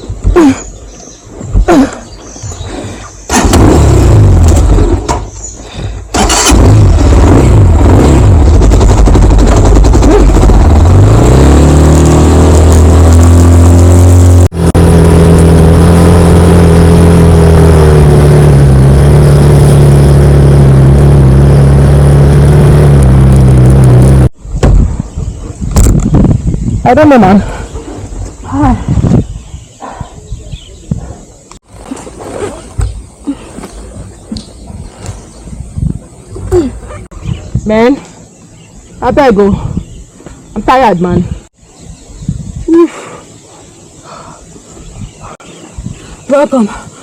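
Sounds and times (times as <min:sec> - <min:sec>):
motorcycle engine running: 0:06.2 - 0:24.4.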